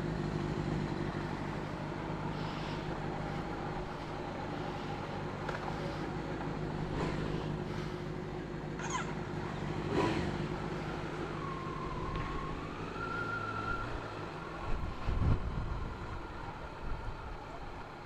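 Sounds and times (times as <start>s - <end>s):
motorcycle engine running: 0.0s - 12.5s.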